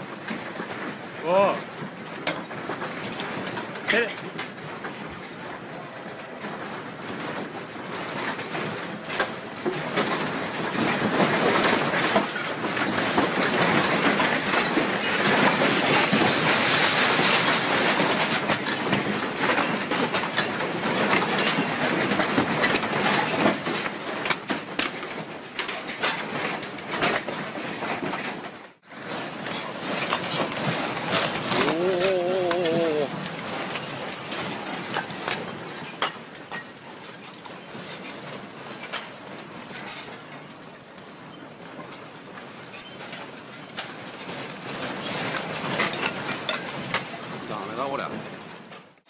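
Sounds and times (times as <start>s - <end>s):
rumbling rattle of furniture: 0.0s - 49.0s.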